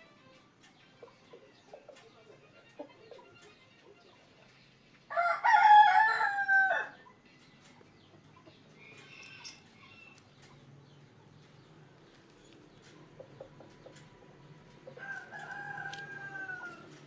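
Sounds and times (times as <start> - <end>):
rooster crowing: 5.1 - 7.0, 15.0 - 17.0.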